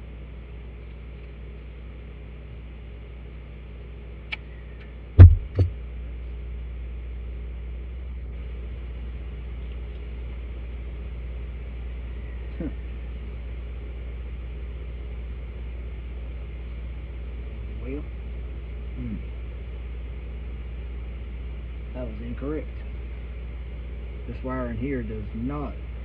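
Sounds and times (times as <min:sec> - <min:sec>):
steady low hum: 0:00.0 - 0:26.0
heavy knocks: 0:05.2 - 0:05.7
sharp click: 0:05.2 - 0:05.7.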